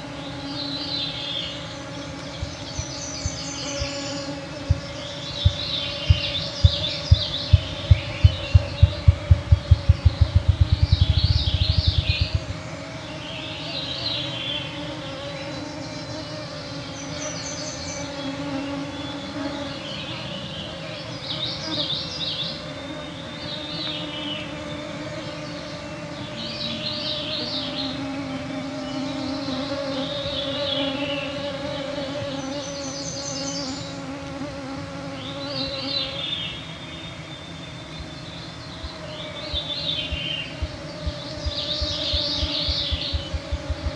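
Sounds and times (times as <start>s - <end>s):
songbirds singing: 0.0s - 43.9s
low fluttering thump: 5.4s - 12.7s, 39.5s - 43.9s
mosquitoes whining: 37.9s - 43.9s.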